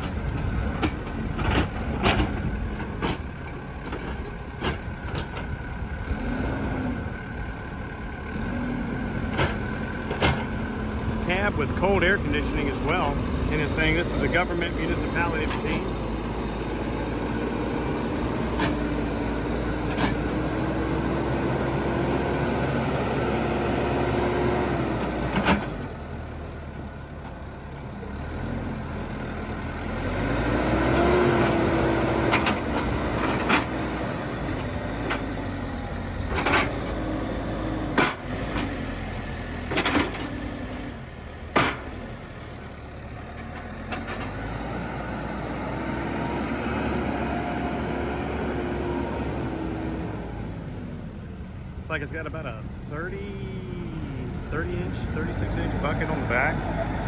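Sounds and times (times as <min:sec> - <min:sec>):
sharp knocks and clunks: 0:00.0 - 0:05.5, 0:09.3 - 0:10.7, 0:18.2 - 0:20.4, 0:31.3 - 0:35.6, 0:36.2 - 0:38.9, 0:39.6 - 0:40.9, 0:41.5 - 0:42.1
diesel engine running: 0:00.0 - 0:57.0.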